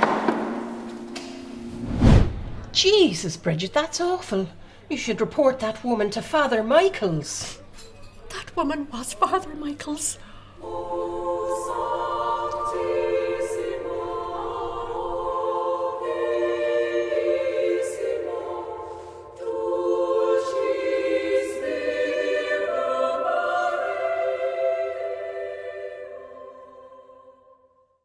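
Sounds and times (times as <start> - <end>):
choir singing a cappella: 10.2 - 27.9.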